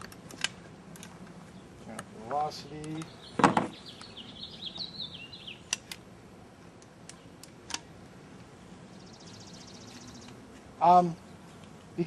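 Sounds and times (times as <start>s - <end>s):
sharp clicks: 0.0s - 3.2s, 5.6s - 6.1s
bird chirping: 1.4s - 6.0s, 7.0s - 7.6s, 8.5s - 12.0s.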